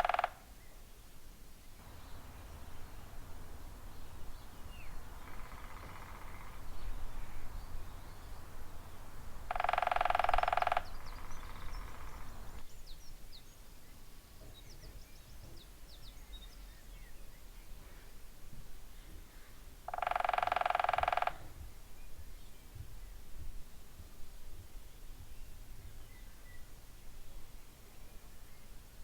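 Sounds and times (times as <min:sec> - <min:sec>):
woodpecker drumming: 0:00.0 - 0:00.4, 0:01.8 - 0:12.6, 0:19.9 - 0:21.5
small birds chirping: 0:01.7 - 0:17.8.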